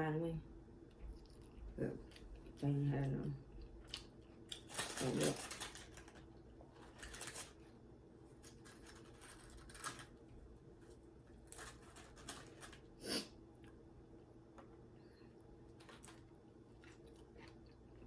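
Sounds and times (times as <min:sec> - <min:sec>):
chewing with crunches: 0:00.8 - 0:07.4, 0:15.6 - 0:18.0.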